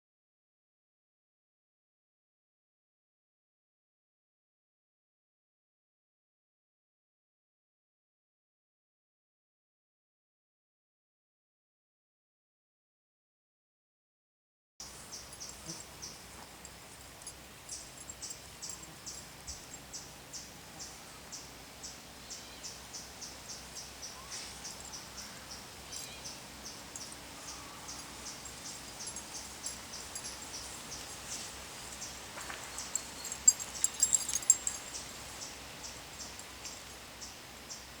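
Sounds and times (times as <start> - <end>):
crickets chirping: 14.8 - 37.9.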